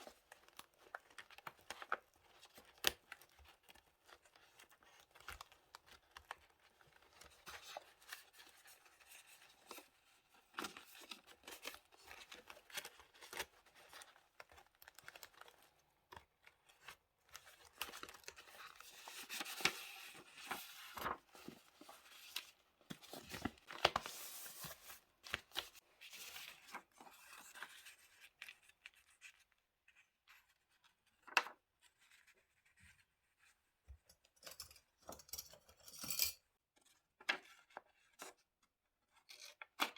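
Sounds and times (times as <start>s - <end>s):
paper tearing and crinkling: 19.4s - 21.2s.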